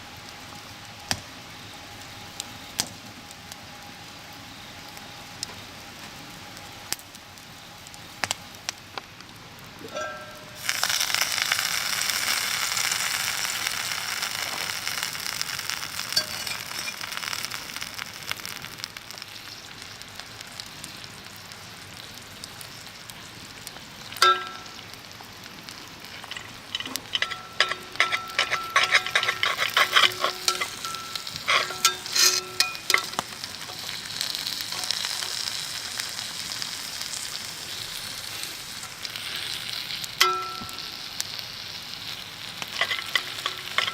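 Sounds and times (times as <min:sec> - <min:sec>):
steak sizzling in skillet: 0:04.1 - 0:43.9
metal clinking on skillet: 0:09.9 - 0:10.8, 0:16.1 - 0:17.2, 0:24.2 - 0:24.8, 0:26.3 - 0:33.9, 0:40.2 - 0:41.0, 0:42.7 - 0:43.9.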